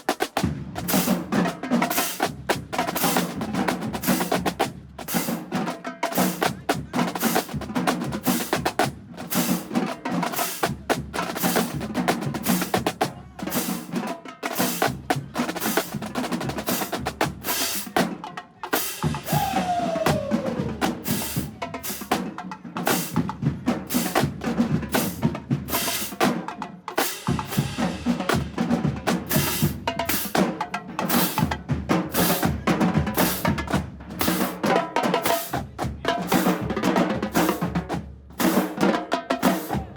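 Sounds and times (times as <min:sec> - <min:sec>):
snare drums: 0:00.0 - 0:39.9
bass drums: 0:19.0 - 0:22.2
falling tone: 0:19.3 - 0:20.9.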